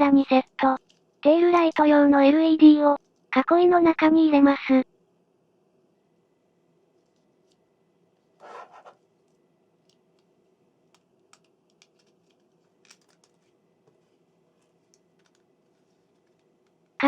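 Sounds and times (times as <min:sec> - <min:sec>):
faint small plastic clicks: 0:09.2 - 0:10.3, 0:10.9 - 0:14.0, 0:14.6 - 0:17.0
plastic scraping rustle: 0:11.8 - 0:16.9.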